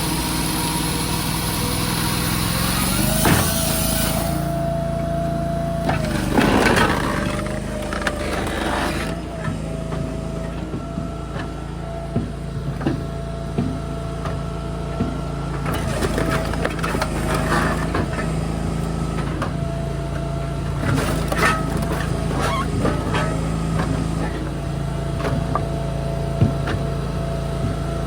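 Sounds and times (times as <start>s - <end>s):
engine running with whine: 0.0s - 28.0s
knocks and clattering thuds: 5.8s - 18.5s, 19.1s - 28.0s.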